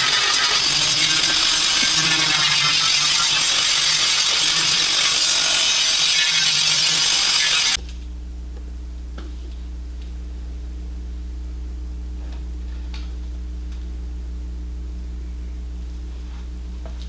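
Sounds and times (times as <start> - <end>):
metalworking tool hissing: 0.0 - 7.8.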